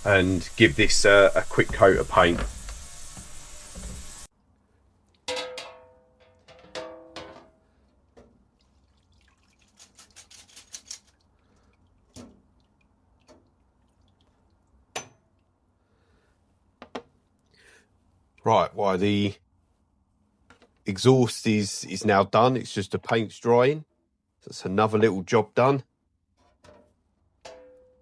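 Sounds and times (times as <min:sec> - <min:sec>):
spray paint can hissing: 0:00.0 - 0:04.3.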